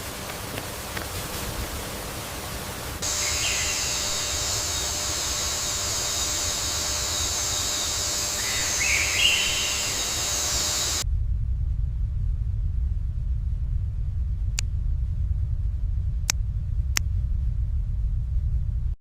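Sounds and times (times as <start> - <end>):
steady high hiss: 0.0 - 11.0
low rumble: 0.0 - 19.0
bird chirps: 3.0 - 11.0.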